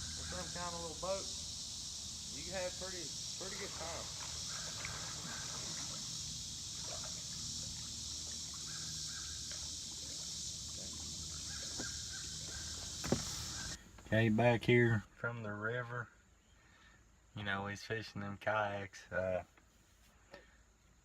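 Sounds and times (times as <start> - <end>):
distant bird calls: 0.0 - 14.1
high-pitched hiss: 0.0 - 14.5.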